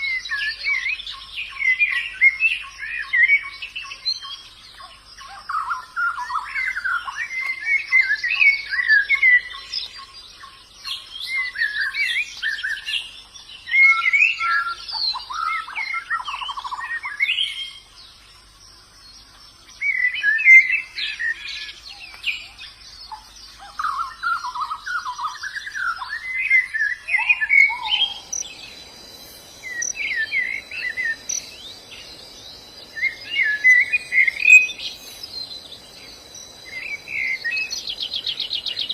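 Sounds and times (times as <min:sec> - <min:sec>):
birds twittering warbling song: 0:00.0 - 0:38.9
high insect buzz: 0:27.3 - 0:38.9.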